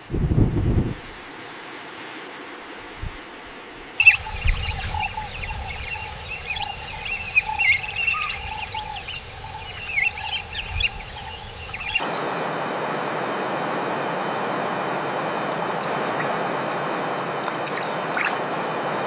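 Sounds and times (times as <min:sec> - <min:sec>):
birds chirping and whistling: 0:04.0 - 0:12.2
lower repeated bird notes: 0:04.0 - 0:19.0.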